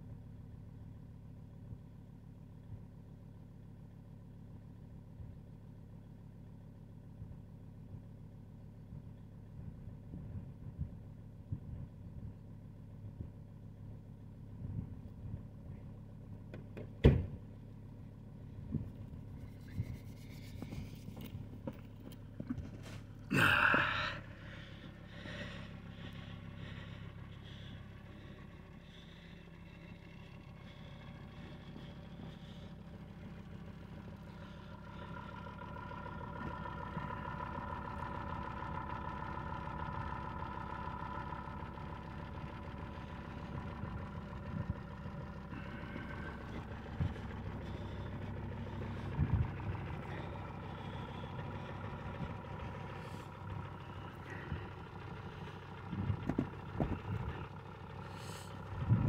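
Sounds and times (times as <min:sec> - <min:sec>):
diesel engine idling: 0:00.0 - 0:59.0
faint whine: 0:18.6 - 0:59.0.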